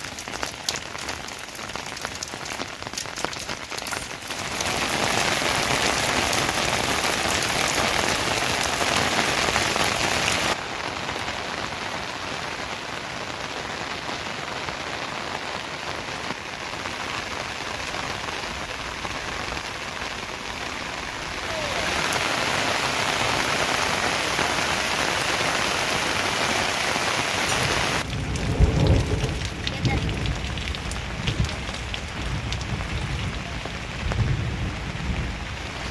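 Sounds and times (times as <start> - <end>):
rain falling: 0.0 - 35.9.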